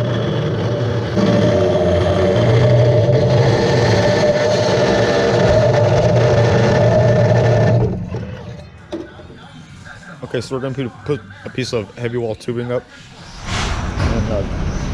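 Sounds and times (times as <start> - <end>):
power saw cutting steel: 0.0 - 8.4.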